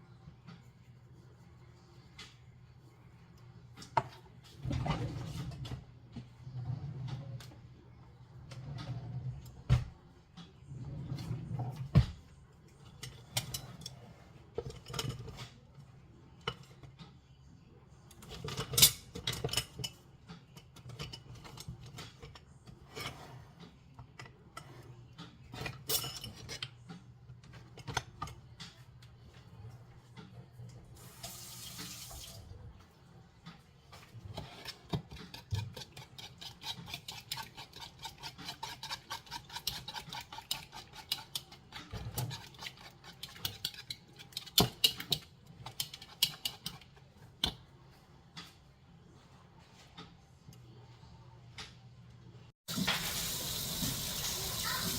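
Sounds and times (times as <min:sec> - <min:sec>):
dishes and utensils clinking: 0:12.8 - 0:15.6, 0:18.2 - 0:23.2, 0:24.1 - 0:28.8, 0:33.9 - 0:47.6.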